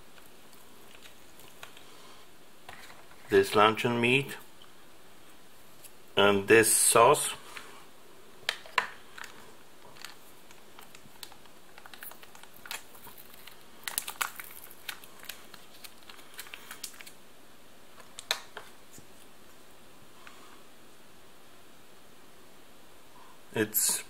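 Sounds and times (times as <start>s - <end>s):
food packaging crinkling: 0.1s - 2.0s, 8.5s - 17.2s.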